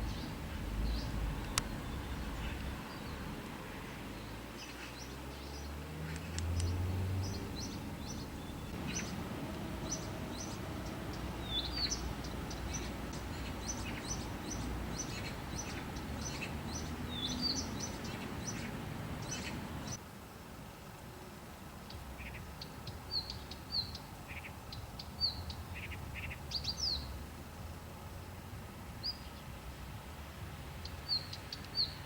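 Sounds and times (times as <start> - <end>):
steady low rumble: 0.0 - 4.6
small birds chirping: 0.0 - 20.0, 21.8 - 27.2, 29.0 - 29.6, 30.8 - 32.0.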